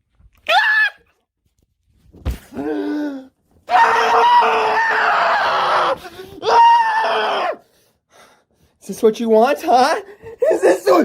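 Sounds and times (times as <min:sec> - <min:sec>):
man screaming: 0:02.9 - 0:07.6.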